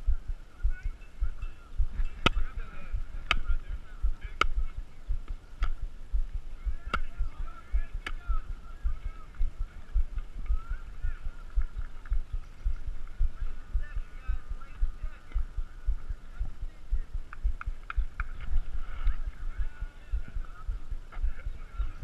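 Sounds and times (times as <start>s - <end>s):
faint distant voices: 0.0s - 22.0s
low constant thumping: 0.0s - 22.0s
sharp claps or knocks: 3.2s - 3.5s, 17.3s - 18.4s.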